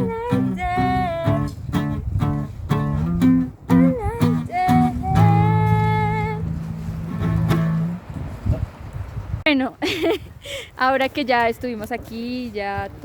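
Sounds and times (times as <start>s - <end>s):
person singing: 0.0s - 1.6s, 3.7s - 6.5s
acoustic guitar strumming: 0.0s - 8.1s.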